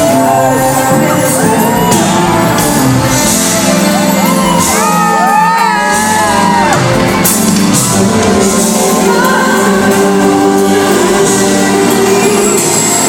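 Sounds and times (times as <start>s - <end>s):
crowd shouting and whooping: 0.0s - 8.2s
band and singer performing: 0.0s - 13.0s.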